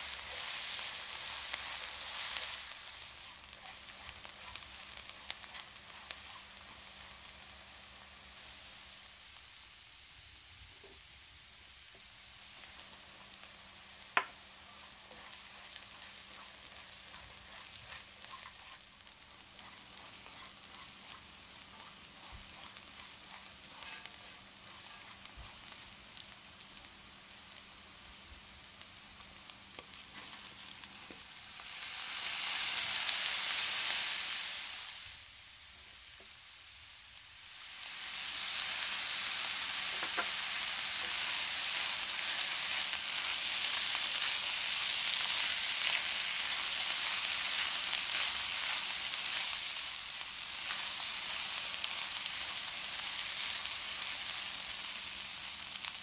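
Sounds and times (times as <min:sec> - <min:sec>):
onion and spices sizzling in oil: 0:00.0 - 0:56.0
rice hissing in oil: 0:00.0 - 0:56.0.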